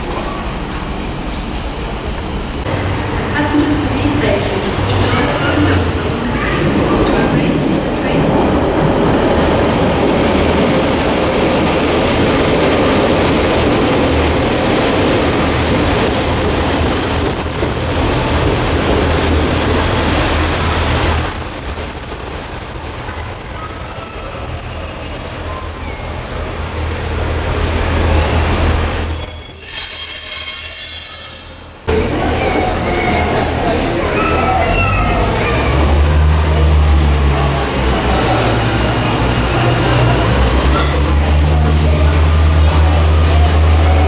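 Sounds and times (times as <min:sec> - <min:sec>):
train engine hum: 0:00.0 - 0:44.0
high-pitched wheel squeal: 0:10.7 - 0:12.1, 0:21.1 - 0:27.2, 0:28.9 - 0:31.9.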